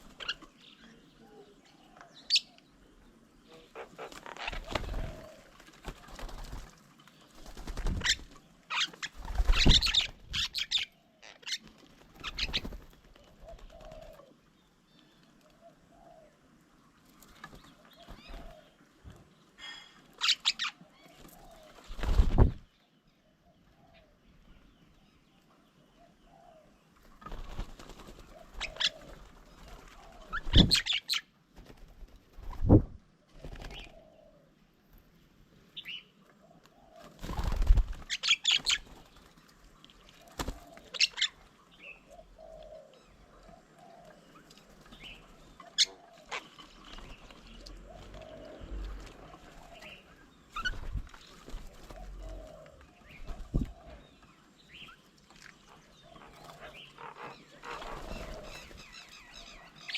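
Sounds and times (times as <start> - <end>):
faint dove cooing: 0.0 - 6.6, 8.0 - 22.0, 23.3 - 24.4, 25.7 - 31.0, 33.2 - 34.8, 35.7 - 39.1, 40.0 - 54.9, 55.8 - 59.9
bird wings flapping: 4.0 - 8.4, 9.0 - 10.4, 11.6 - 14.2, 17.3 - 18.6, 21.2 - 22.6, 27.1 - 31.0, 31.6 - 34.0, 37.0 - 39.5, 40.2 - 40.8, 50.5 - 52.5, 57.6 - 58.9
birds chattering calls: 7.2 - 14.4, 26.0 - 31.3, 35.8 - 39.2, 40.2 - 55.0, 55.6 - 59.9.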